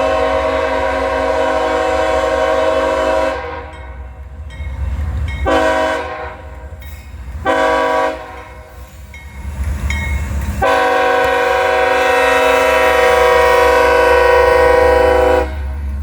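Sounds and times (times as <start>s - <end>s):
locomotive air horn blasts: 0.0s - 3.8s, 5.4s - 6.6s, 7.4s - 8.6s, 10.6s - 15.7s
passing train rumble: 0.0s - 16.0s.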